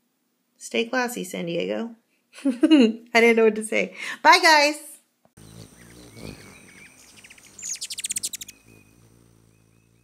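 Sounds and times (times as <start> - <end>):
birds chirping: 5.4 - 10.0
faint steady hum: 5.4 - 10.0
fast bird trill: 5.4 - 10.0.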